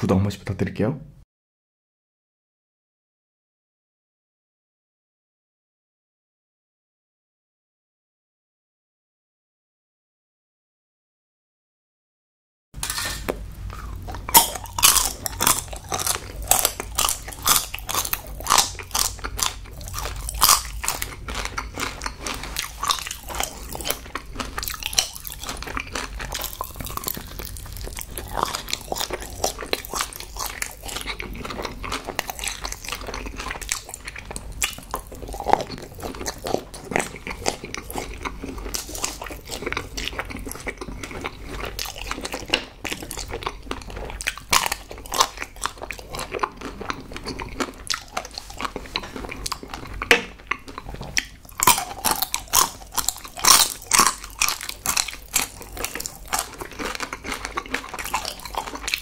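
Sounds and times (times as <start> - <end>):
chocolate shells crackling: 12.8 - 39.8
chewing soft sweets: 13.5 - 59.0.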